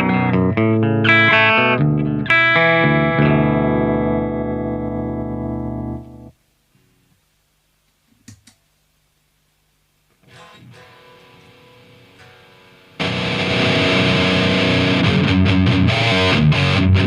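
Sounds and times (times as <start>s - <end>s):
electric guitar: 0.0s - 6.3s, 10.2s - 17.0s
faint amp hum: 0.0s - 17.0s.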